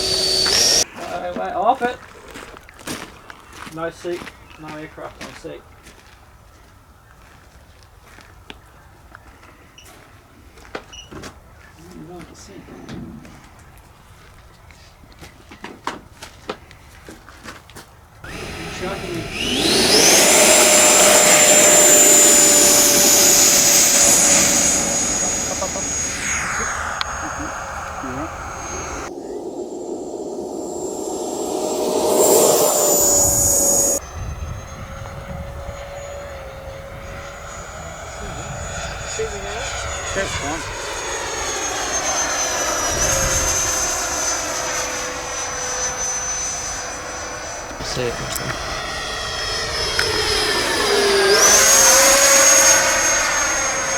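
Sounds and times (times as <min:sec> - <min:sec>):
rushing air: 0:00.0 - 0:00.8, 0:18.3 - 0:53.9
electric ducted fan whining: 0:00.0 - 0:00.9, 0:18.2 - 0:53.9.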